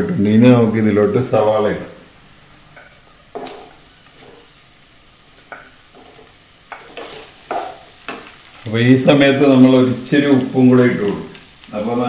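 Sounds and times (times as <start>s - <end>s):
spices sizzling in hot oil: 0.4s - 12.0s
spatula scraping: 5.6s - 8.4s.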